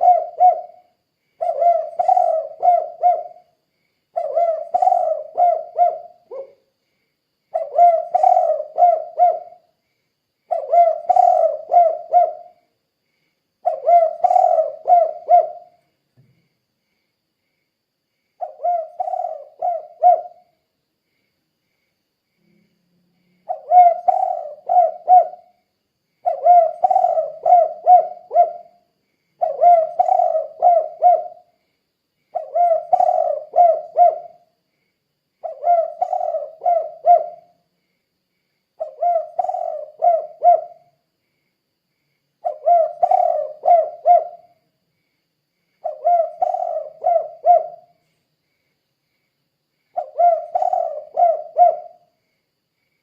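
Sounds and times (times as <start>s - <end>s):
dove cooing: 0.0s - 3.5s, 4.1s - 6.6s, 7.5s - 9.7s, 10.5s - 12.6s, 13.6s - 15.8s, 18.4s - 20.5s, 23.4s - 25.5s, 26.2s - 28.8s, 29.4s - 31.5s, 32.3s - 34.4s, 35.4s - 37.5s, 38.8s - 41.0s, 42.4s - 44.6s, 45.8s - 48.0s, 50.0s - 52.0s.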